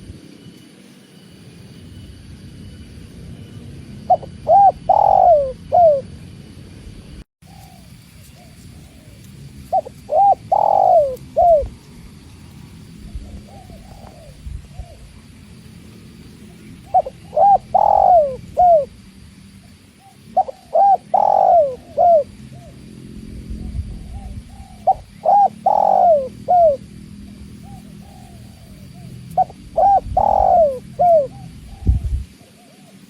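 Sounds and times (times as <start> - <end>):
dove cooing: 4.0 - 6.2, 7.5 - 11.8, 13.0 - 15.2, 16.4 - 19.0, 19.6 - 33.0
faint distant dove cooing: 4.1 - 6.1, 7.5 - 11.7, 13.0 - 15.2, 16.4 - 18.9, 19.7 - 23.0, 23.6 - 33.0.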